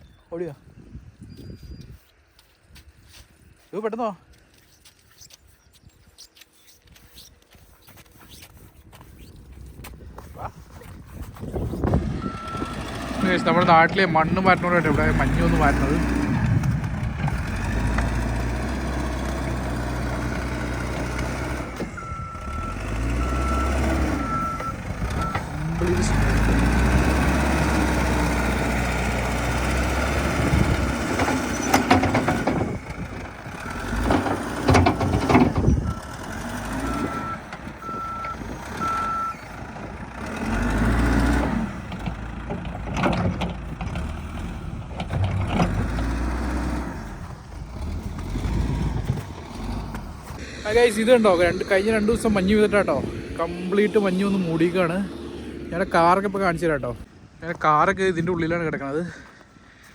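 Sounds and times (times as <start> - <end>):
heavy machine engine rumble: 11.6 - 59.9
reversing alarm beeping: 12.1 - 14.1, 21.9 - 26.4, 36.8 - 39.5.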